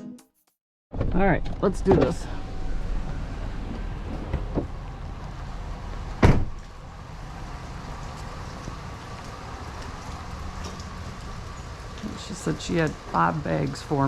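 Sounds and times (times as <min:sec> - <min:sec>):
vehicle door slamming: 0:06.1 - 0:06.7.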